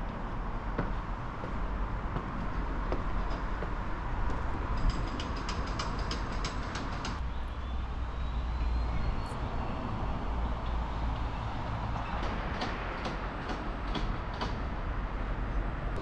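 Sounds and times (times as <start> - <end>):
vehicle rumble: 0.0 - 12.6.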